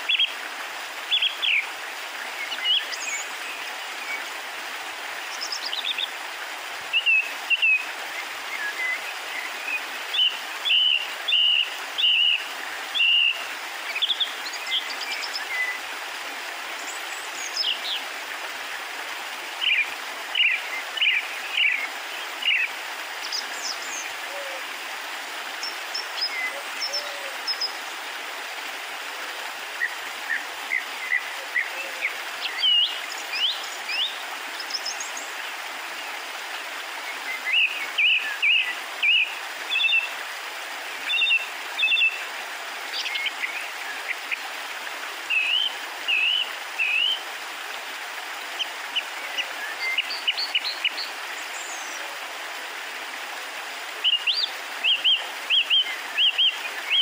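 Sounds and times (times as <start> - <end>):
small birds chirping: 1.0 - 4.4, 5.2 - 15.9, 16.7 - 18.2, 19.5 - 24.6, 29.8 - 36.2, 45.3 - 47.2, 48.6 - 52.2, 54.0 - 57.0.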